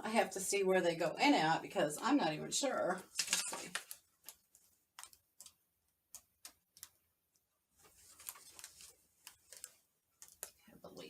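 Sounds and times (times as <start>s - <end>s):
soft rustling: 7.7s - 10.8s.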